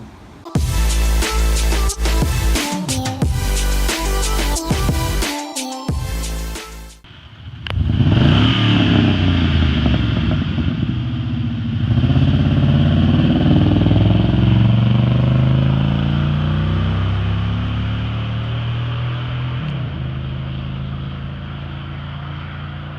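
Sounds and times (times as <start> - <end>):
vehicle engine revving: 7.7 - 22.9.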